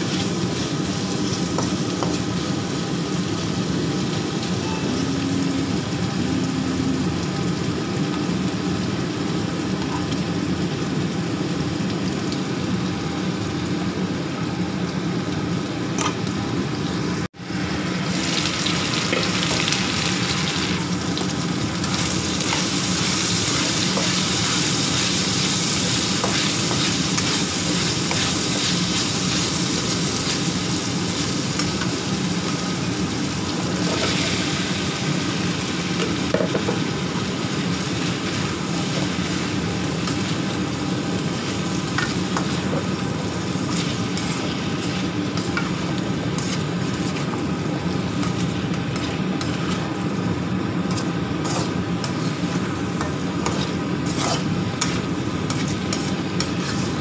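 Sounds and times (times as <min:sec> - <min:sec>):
food sizzling in hot oil: 0:00.0 - 0:57.0
spatula scraping a wok: 0:22.5 - 0:30.4, 0:43.6 - 0:47.4, 0:50.9 - 0:57.0.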